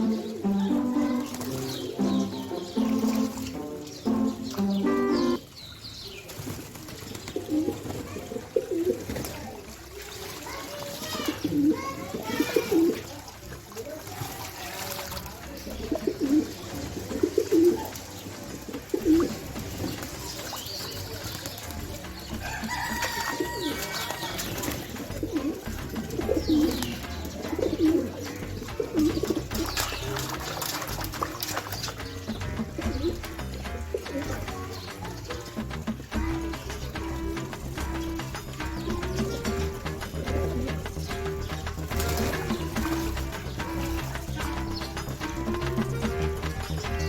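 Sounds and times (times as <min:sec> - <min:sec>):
pigeons cooing: 0:00.0 - 0:05.4, 0:06.4 - 0:09.4, 0:11.1 - 0:13.2, 0:15.6 - 0:47.0
bird chirps: 0:00.0 - 0:06.3.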